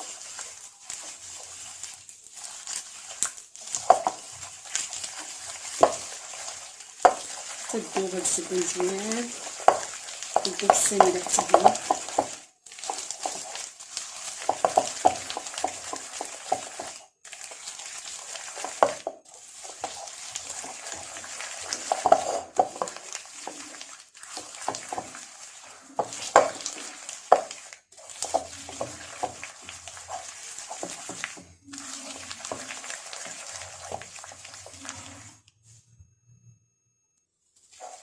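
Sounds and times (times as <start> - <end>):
utensil scraping a bowl: 0.0 - 35.5, 37.7 - 38.0
utensil knocking against bowl: 9.6 - 12.3.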